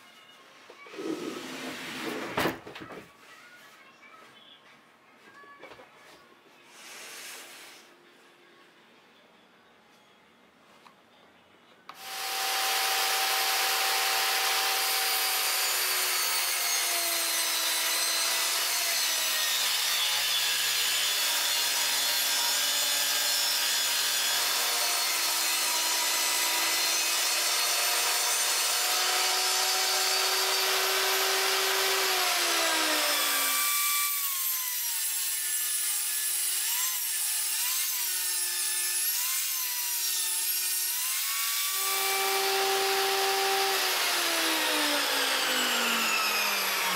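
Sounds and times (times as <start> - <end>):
power saw cutting wood: 0.9 - 2.3, 11.9 - 46.9.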